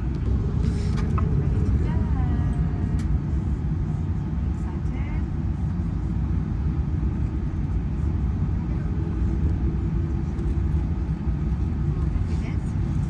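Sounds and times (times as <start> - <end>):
airliner cabin low rumble: 0.0 - 13.0.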